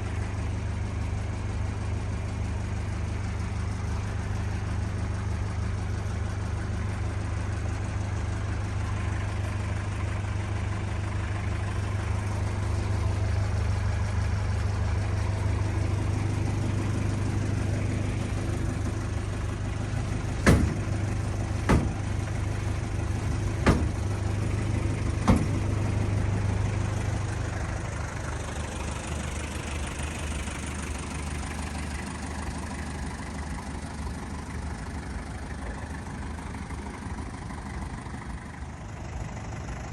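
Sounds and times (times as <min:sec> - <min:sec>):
diesel engine idling: 0:00.0 - 0:39.9
sharp engine knocks: 0:16.6 - 0:26.8.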